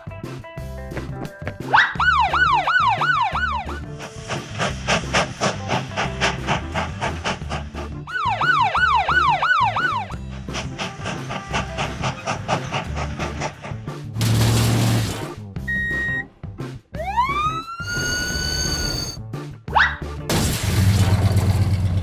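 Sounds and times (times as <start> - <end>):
music with steady beat: 0.0 - 14.4
police siren yelping: 1.8 - 3.9, 8.1 - 10.2, 17.0 - 19.2.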